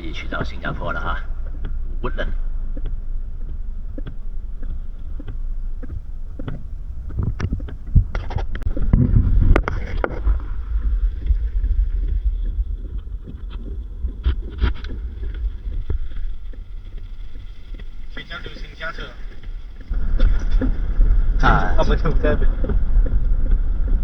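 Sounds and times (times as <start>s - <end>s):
engine and wet road rumble: 0.0s - 24.0s
taps and knocks: 0.1s - 17.9s.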